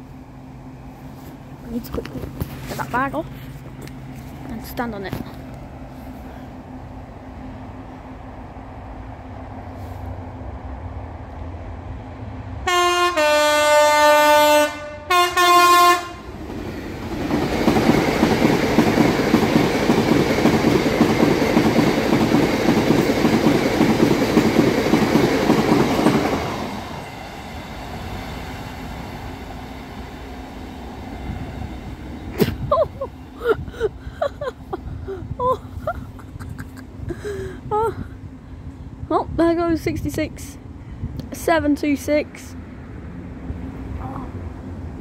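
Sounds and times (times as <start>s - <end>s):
freight train rumbling past: 0.0s - 45.0s
locomotive horn blasts: 12.6s - 16.3s.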